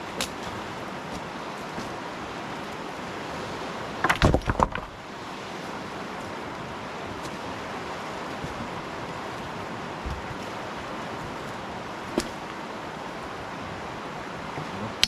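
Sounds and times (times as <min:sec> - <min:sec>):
dry firewood cracking: 0:04.0 - 0:05.0, 0:06.2 - 0:12.6.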